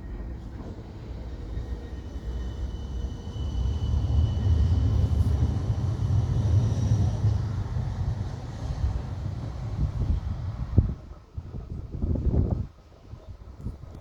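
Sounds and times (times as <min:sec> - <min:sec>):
tram rumbling past: 0:00.0 - 0:11.2.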